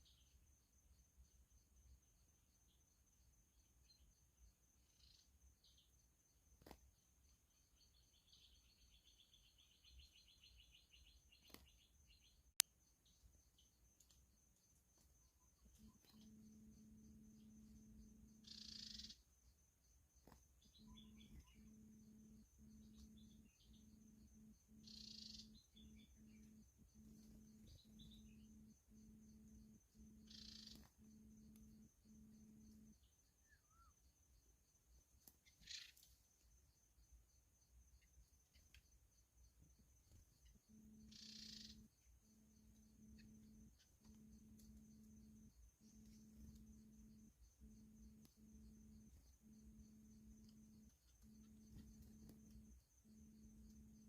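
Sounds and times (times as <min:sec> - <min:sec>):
small bird chirps: 0:00.0 - 0:00.4, 0:04.8 - 0:06.0, 0:07.6 - 0:14.3, 0:15.0 - 0:19.4, 0:20.2 - 0:34.0, 0:35.2 - 0:36.3, 0:37.9 - 0:39.0, 0:40.1 - 0:54.0
low steady hum: 0:00.0 - 0:54.0.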